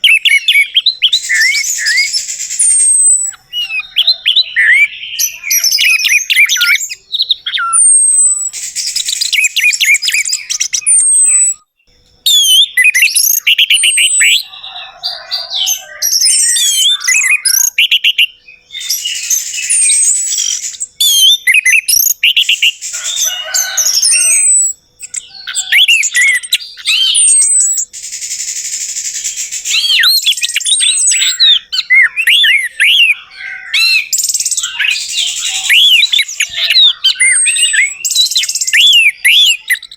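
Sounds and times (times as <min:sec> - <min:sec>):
thrush singing: 0:27.8 - 0:39.7.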